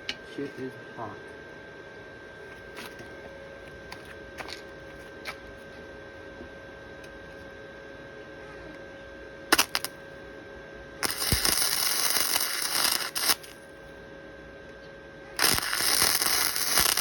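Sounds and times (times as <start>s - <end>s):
faint steady hum: 0.0s - 17.0s
arc welding crackle: 9.5s - 10.0s, 11.0s - 13.8s, 15.4s - 17.0s.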